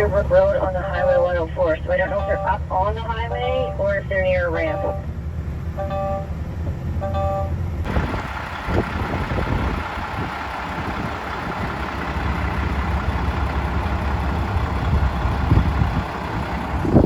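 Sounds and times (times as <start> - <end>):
diesel truck engine droning: 0.0 - 17.0.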